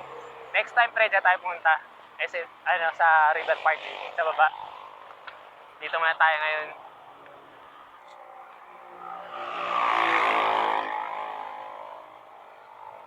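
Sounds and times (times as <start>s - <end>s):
motor vehicle passing by: 3.3s - 5.6s, 6.8s - 13.0s.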